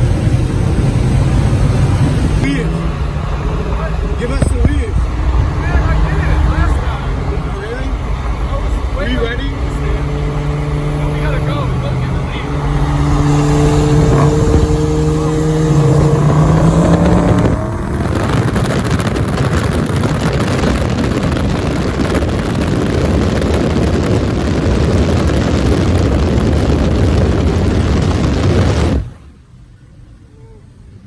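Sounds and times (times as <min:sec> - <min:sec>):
wind noise: 0:00.0 - 0:07.5, 0:12.4 - 0:29.4
car engine revving: 0:00.0 - 0:29.2.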